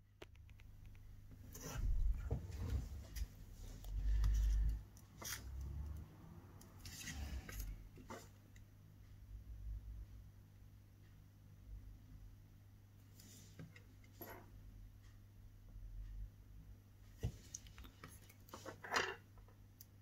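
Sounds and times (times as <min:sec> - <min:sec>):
steady low hum: 0:01.1 - 0:05.2.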